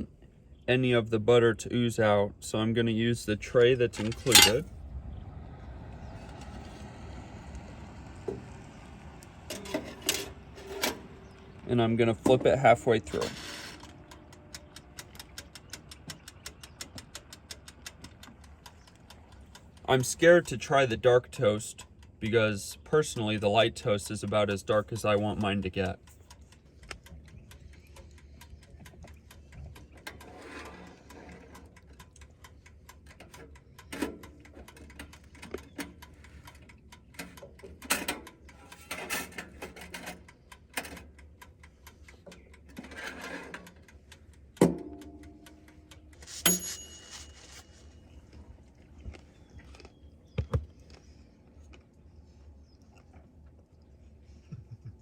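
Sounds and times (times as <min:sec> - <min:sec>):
handling clatter: 0:03.9 - 0:04.7, 0:44.6 - 0:48.8
dial timer ticking: 0:13.8 - 0:30.3, 0:31.0 - 0:38.8, 0:40.2 - 0:42.8, 0:43.6 - 0:46.6
bell-like ding: 0:46.5 - 0:47.4.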